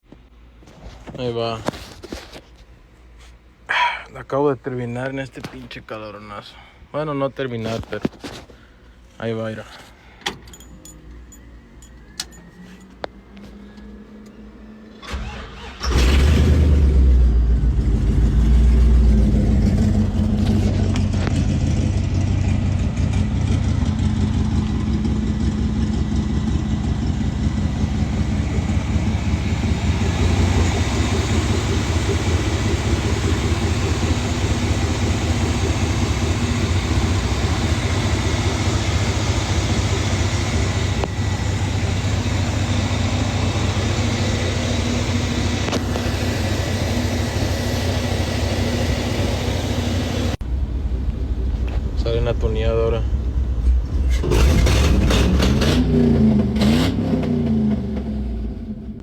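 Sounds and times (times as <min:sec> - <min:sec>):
engine cranking and idling: 0:15.0 - 0:50.4, 0:53.2 - 0:58.1.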